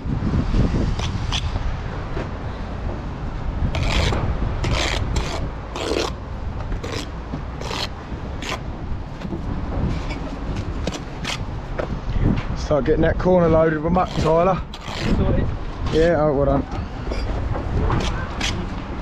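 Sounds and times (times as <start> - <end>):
wind buffeting microphone: 0.0 - 19.0
steel tool scraping mortar: 3.7 - 6.2, 6.8 - 8.6, 14.0 - 15.3.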